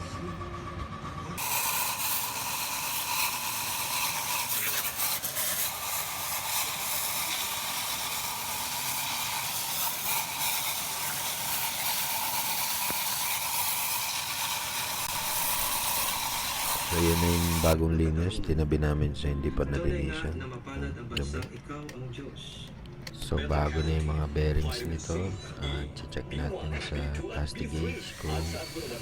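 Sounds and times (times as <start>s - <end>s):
hissing spray: 1.4s - 17.8s, 27.8s - 29.0s.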